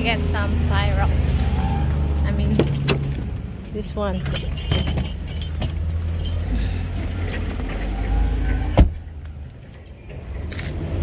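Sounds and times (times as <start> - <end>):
engine low rumble: 0.0 - 11.0
light clinks and rattles: 4.0 - 6.9.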